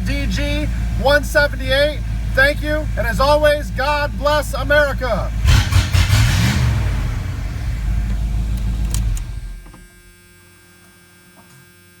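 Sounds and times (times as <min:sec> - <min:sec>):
truck engine running: 0:00.0 - 0:10.4
sharp clicks: 0:08.5 - 0:09.4.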